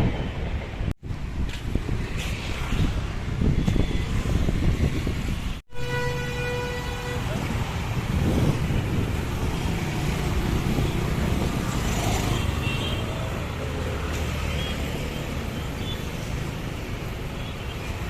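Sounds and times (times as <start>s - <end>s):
passing vehicle rumble: 7.2s - 17.4s.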